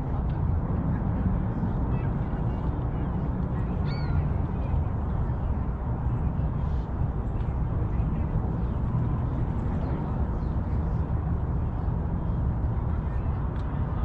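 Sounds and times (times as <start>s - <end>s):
faint bird chirps: 3.8s - 4.2s.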